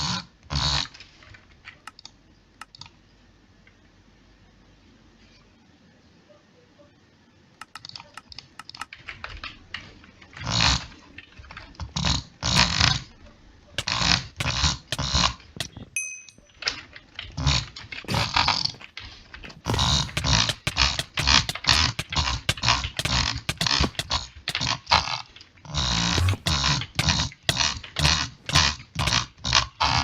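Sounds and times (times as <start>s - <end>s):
rattling mouth noises: 13.8s - 30.0s.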